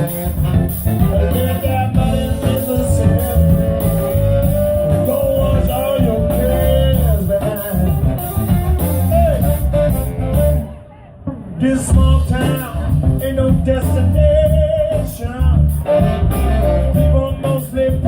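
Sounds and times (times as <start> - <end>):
lead line long bent note: 0.0 - 12.9
live blues band playing: 0.0 - 18.0.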